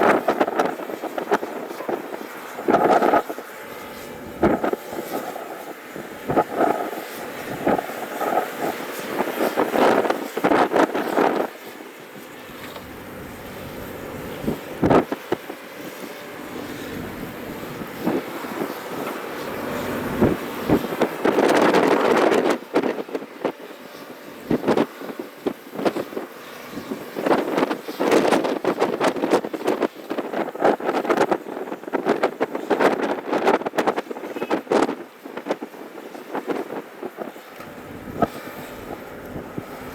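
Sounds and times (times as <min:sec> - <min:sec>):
excavator diesel engine under load: 0:12.3 - 0:22.8, 0:37.5 - 0:39.9.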